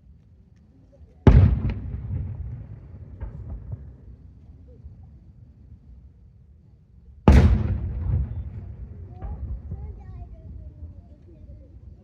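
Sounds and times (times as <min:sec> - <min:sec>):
faint outdoor rumble: 0:00.0 - 0:12.0.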